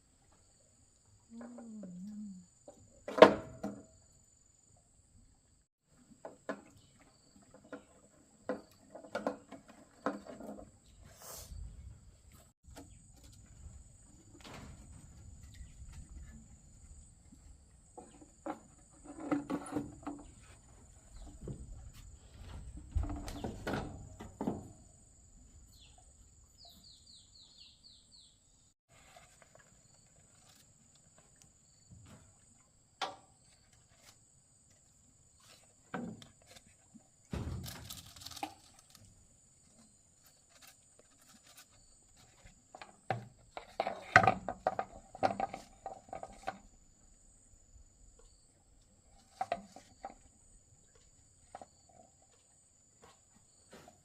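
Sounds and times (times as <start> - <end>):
objects knocking and thudding: 2.7 - 4.0, 6.1 - 11.0, 17.9 - 25.0, 35.8 - 39.0, 42.2 - 46.7.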